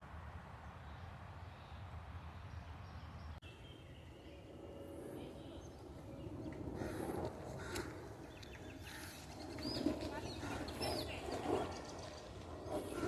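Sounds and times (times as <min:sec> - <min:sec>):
faint bird calls: 0:03.5 - 0:12.1.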